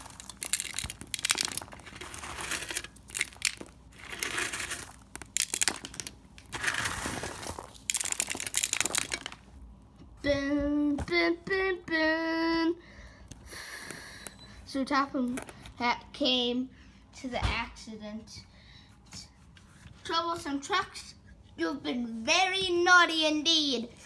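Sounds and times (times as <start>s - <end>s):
toy train trucks clattering: 0.0s - 9.4s.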